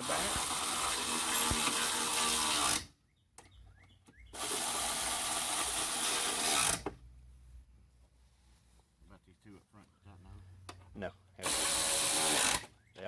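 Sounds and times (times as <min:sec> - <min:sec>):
power tool hissing bursts: 0:04.4 - 0:06.8, 0:11.4 - 0:12.7.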